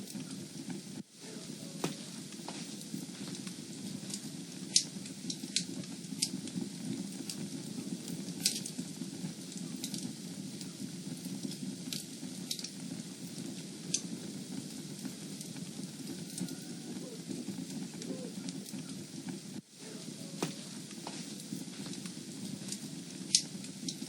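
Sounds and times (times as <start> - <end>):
fire popping: 0.0 - 24.0
rumble of fireplace flames: 0.0 - 24.0.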